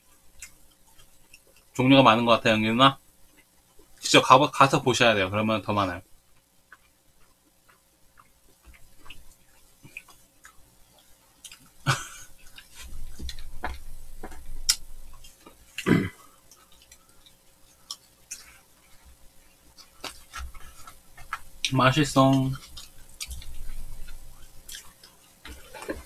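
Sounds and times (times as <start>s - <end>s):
croissant crunching while chewed: 6.4s - 21.7s, 22.3s - 26.0s.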